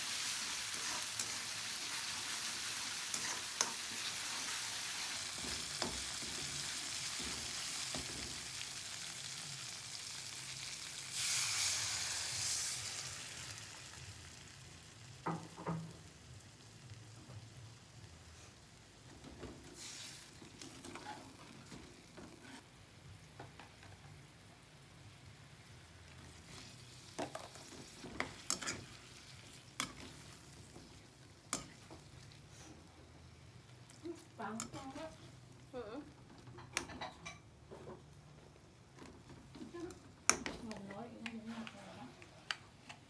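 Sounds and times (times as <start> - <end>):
food sizzling in a frying pan: 0.0 - 37.5.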